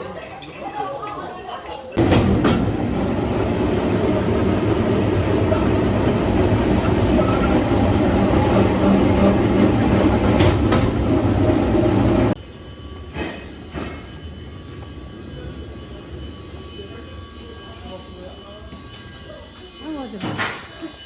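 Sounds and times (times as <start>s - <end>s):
steel wheels rumbling on rails: 2.0s - 12.4s.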